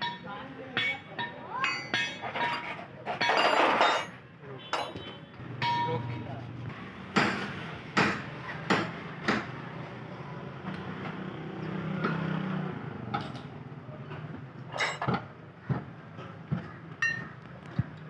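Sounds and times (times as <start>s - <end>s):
tools knocking on metal: 16.5s - 18.0s.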